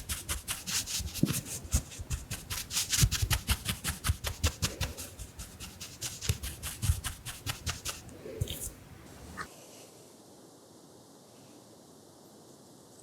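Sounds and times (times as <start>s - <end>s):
makeup brush brushing microphone: 0.0s - 9.5s.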